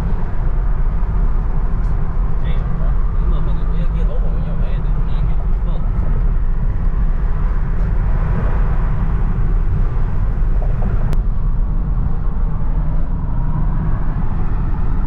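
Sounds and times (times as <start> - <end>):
car rumble: 0.0 - 15.0.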